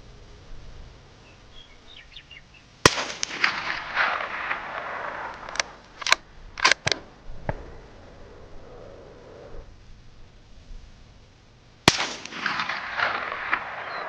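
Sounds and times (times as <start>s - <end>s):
suppressed rifle shot: 2.8s - 10.2s, 11.8s - 14.0s
rifle bolt metallic clicks: 5.3s - 7.6s.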